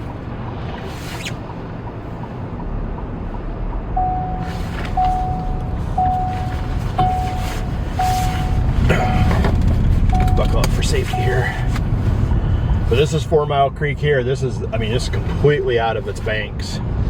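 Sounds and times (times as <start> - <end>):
vehicle rumble: 0.0 - 17.0
vehicle warning chime beeping: 3.9 - 12.2.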